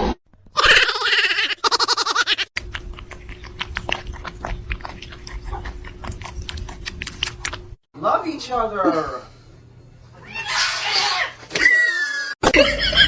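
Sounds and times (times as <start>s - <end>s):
crunching clicks: 2.6s - 7.8s
pet pulsing vocal sound: 2.6s - 7.8s.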